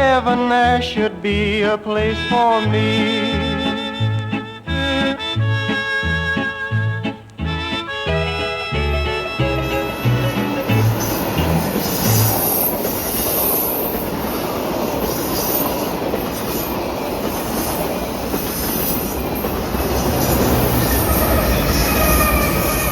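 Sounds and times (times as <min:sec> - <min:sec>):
train rumbling on rails: 0:08.1 - 0:22.9.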